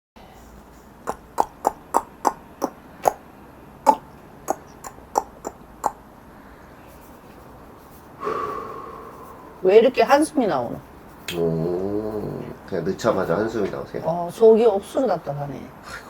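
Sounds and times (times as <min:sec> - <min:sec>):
drawn-out voiced sound: 0:01.1 - 0:03.2, 0:03.9 - 0:06.0, 0:08.2 - 0:12.8.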